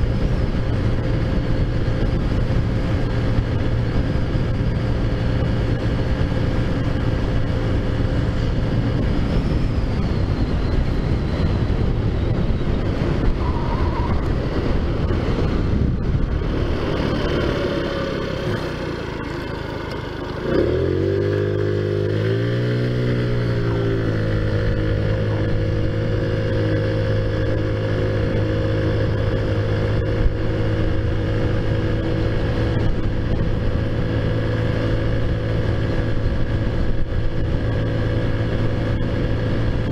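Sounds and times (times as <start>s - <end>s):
scooter engine revving: 12.8s - 39.9s.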